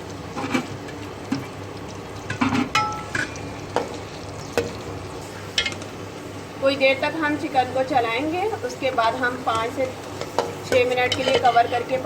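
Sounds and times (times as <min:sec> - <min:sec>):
faint frying: 0:00.0 - 0:12.0
spoon scraping and knocking pan: 0:10.2 - 0:11.7.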